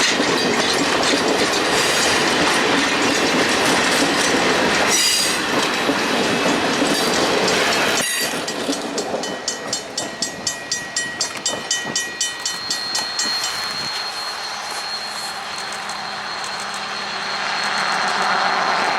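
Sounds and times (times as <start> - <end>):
wheels clicking over rail joints: 0.0 - 14.9
train rushing past: 0.0 - 18.9
faint high ring: 10.5 - 18.9.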